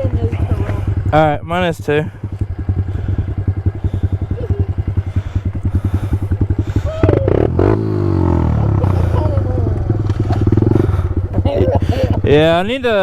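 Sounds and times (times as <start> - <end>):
motorbike engine idling and revving: 0.0 - 13.0.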